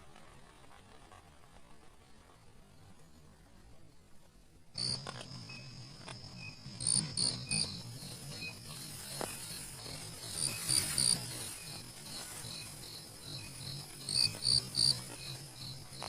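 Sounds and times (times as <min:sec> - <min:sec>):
crickets and insects chirping: 0:04.8 - 0:16.0
frogs calling: 0:06.4 - 0:09.7.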